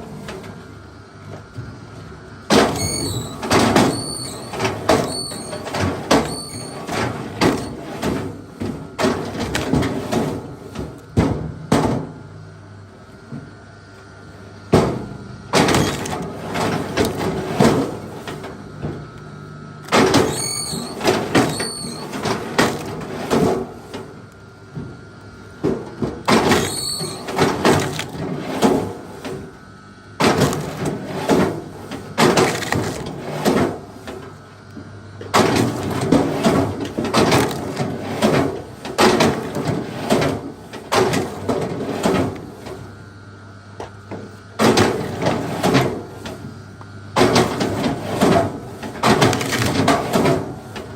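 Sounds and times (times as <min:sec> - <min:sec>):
wood knocks and cracks: 0:32.2 - 0:33.1.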